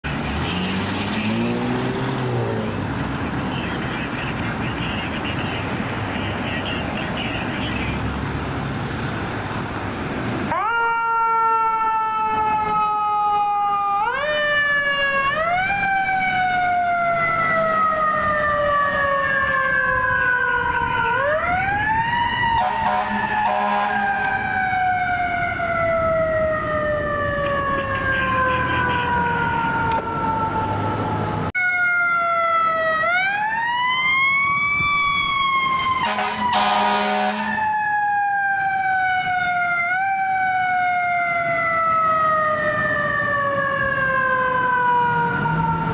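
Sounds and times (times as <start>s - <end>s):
fire siren wailing: 0.0s - 45.9s
buzzy air horn blasts: 22.6s - 24.1s, 36.0s - 37.6s.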